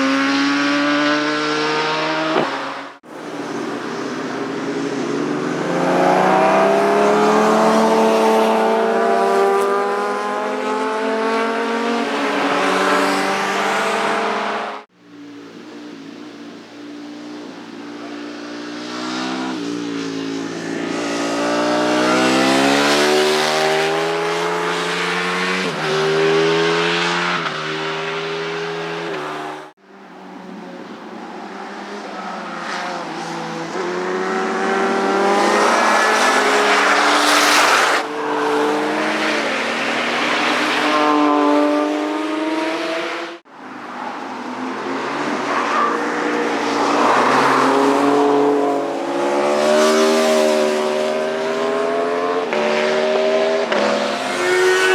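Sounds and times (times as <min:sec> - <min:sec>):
motorcycle engines accelerating past: 0:46.3 - 0:54.9.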